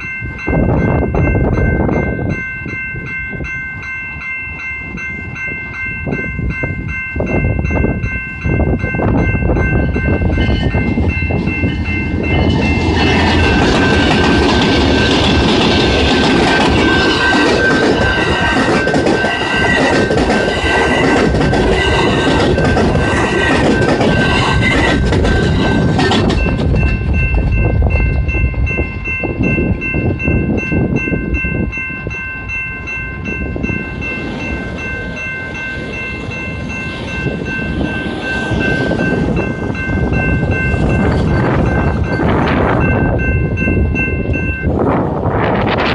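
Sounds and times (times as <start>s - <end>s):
crossing warning bell: 0.0s - 45.9s
train wheels clattering over rails: 10.6s - 28.4s.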